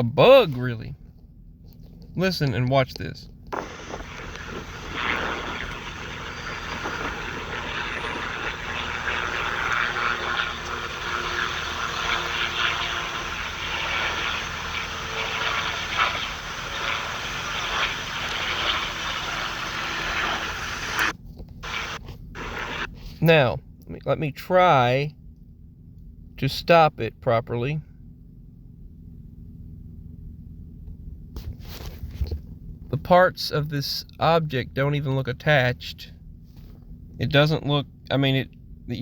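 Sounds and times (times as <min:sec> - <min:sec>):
helicopter hovering: 0:03.5 - 0:22.9.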